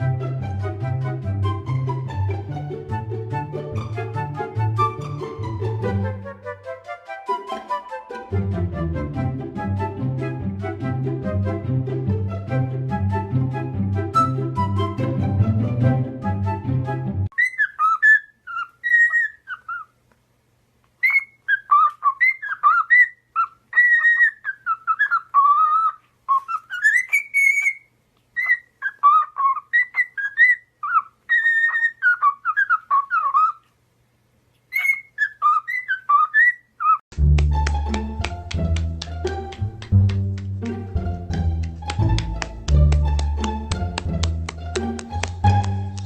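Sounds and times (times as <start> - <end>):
parrot whistling a tune: 14.2 - 15.0, 17.3 - 19.9, 21.0 - 33.6, 34.7 - 37.0.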